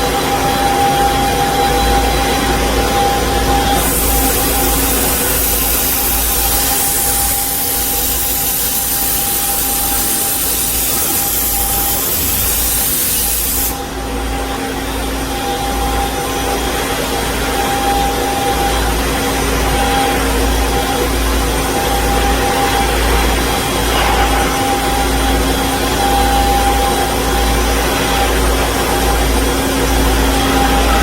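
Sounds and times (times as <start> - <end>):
band saw machine humming: 0.0 - 31.0
loud hiss: 3.6 - 14.0.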